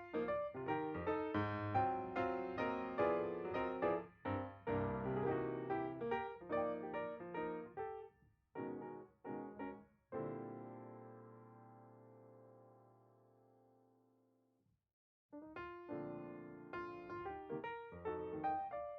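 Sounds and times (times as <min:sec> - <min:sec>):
piano chords: 0:00.0 - 0:08.0, 0:08.6 - 0:12.9, 0:15.5 - 0:18.9.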